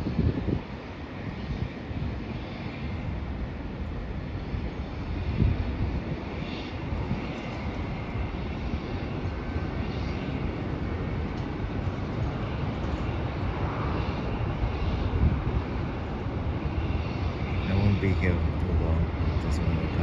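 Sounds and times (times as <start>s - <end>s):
distant jet engines rumbling: 0.0s - 20.0s
faint high whine: 16.8s - 20.0s.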